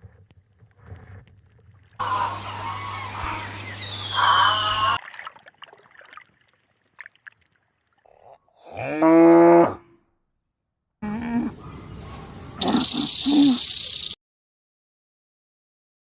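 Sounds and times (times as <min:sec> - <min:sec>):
loud pitched animal call: 0:02.0 - 0:05.0, 0:12.6 - 0:14.2.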